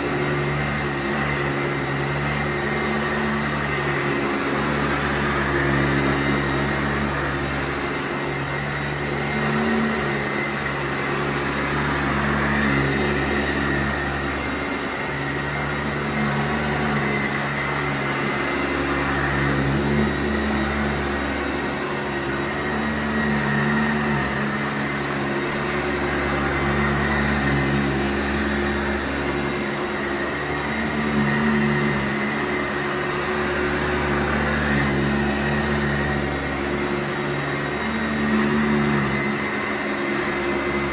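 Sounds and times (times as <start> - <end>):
vacuum cleaner running over carpet: 0.0 - 40.9.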